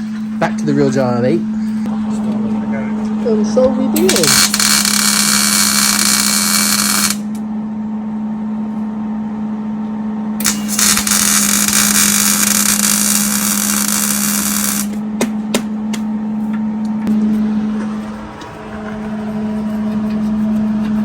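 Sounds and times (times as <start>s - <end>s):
electrical hum: 0.0s - 21.0s
welding hiss: 4.0s - 7.4s, 10.4s - 15.0s.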